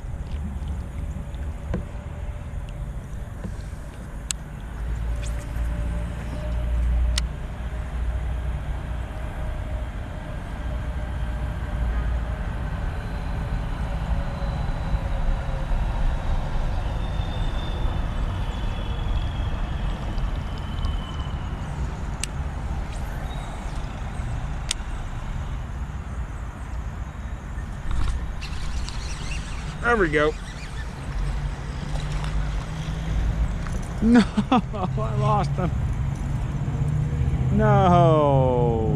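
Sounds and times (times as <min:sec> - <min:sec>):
road traffic rumble: 0:00.0 - 0:38.9
vehicle passing: 0:17.6 - 0:38.9.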